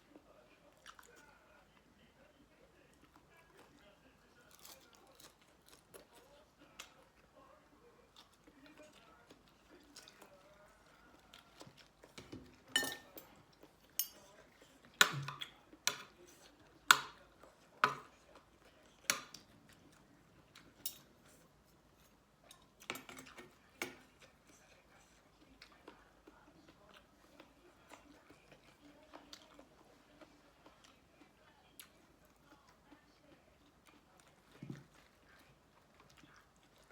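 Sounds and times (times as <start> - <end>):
cutlery clinking against dish: 12.2 - 14.4, 20.7 - 21.4.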